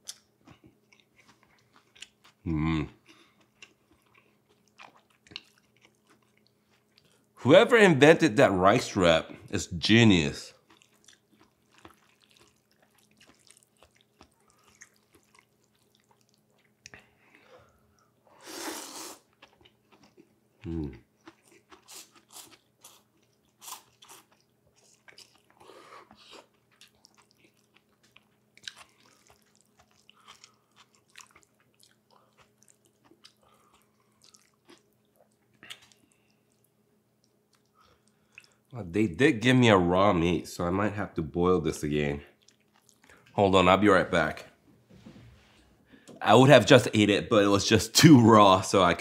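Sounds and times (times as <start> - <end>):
person chewing and biting: 0.0 - 7.2, 10.5 - 17.3, 18.5 - 38.7, 42.4 - 43.3.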